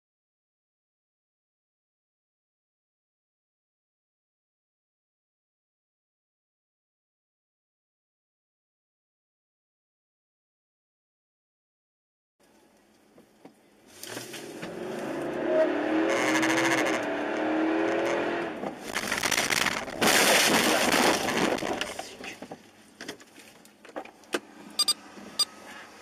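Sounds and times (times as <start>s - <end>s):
car engine revving: 14.1s - 22.0s
loud rough noise: 14.2s - 22.2s.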